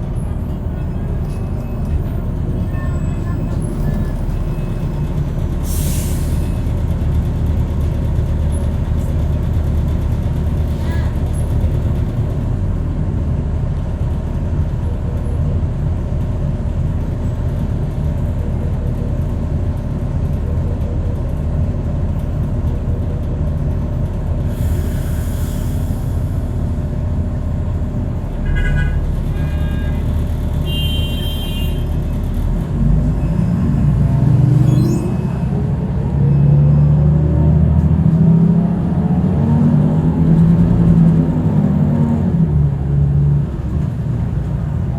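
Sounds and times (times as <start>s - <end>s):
traffic idling: 0.0s - 36.7s, 39.9s - 44.9s
train rumble: 0.0s - 44.9s
short horn beeps: 34.6s - 35.6s.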